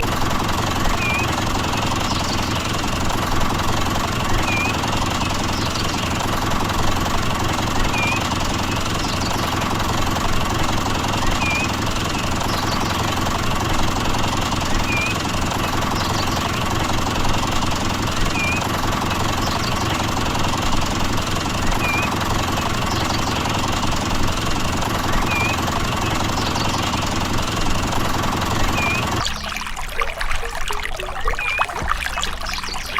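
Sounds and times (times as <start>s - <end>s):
small engine running: 0.0s - 30.4s
faint short chirp: 31.2s - 32.9s.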